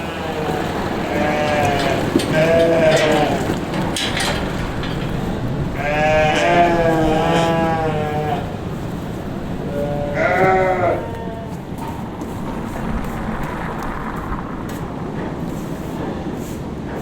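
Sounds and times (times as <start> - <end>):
sheep bleating: 0.0 - 3.5, 5.8 - 8.6, 9.6 - 11.6
steady background noise: 0.0 - 17.0.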